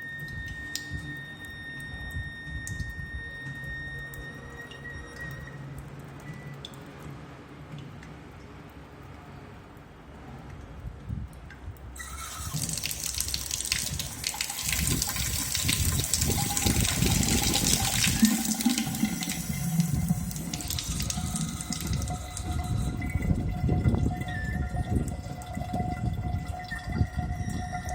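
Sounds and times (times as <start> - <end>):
high-pitched tap whine: 0.0 - 5.5, 12.0 - 25.1
tap water running: 12.0 - 27.9.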